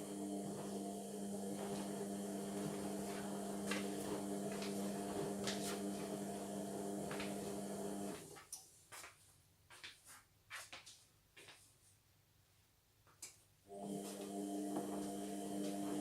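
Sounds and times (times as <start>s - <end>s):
washing machine hum: 0.0s - 8.4s, 13.7s - 16.0s.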